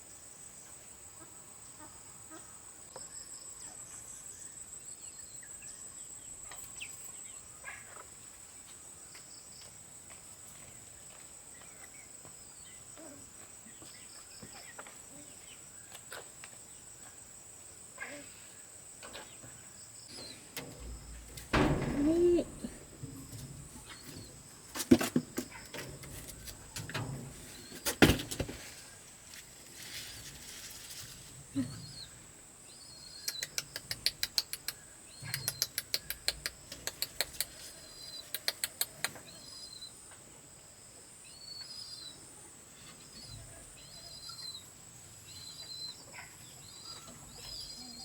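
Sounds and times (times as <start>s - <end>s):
small birds chirping: 1.7s - 28.0s, 31.4s - 40.3s, 40.9s - 48.0s
sharp knocks: 20.1s - 28.6s
quick clicks: 33.2s - 37.6s, 38.3s - 39.2s.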